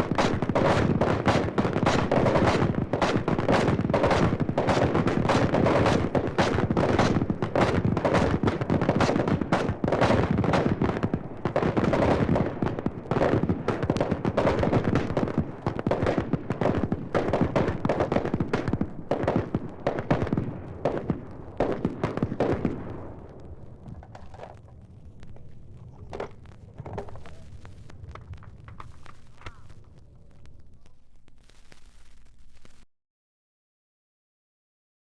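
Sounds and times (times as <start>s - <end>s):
rapid continuous gunfire: 0.0s - 24.5s.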